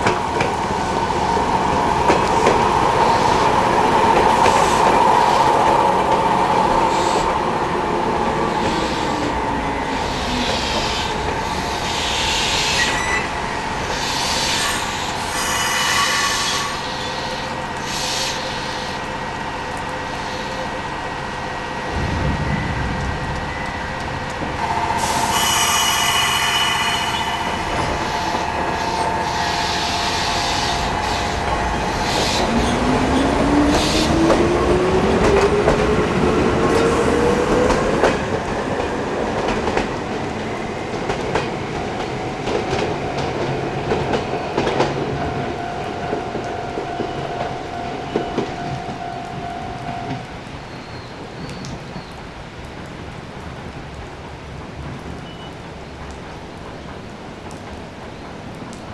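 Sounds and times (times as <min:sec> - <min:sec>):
train equipment hum: 0:00.0 - 0:58.9
traction motors whining: 0:21.9 - 0:38.4.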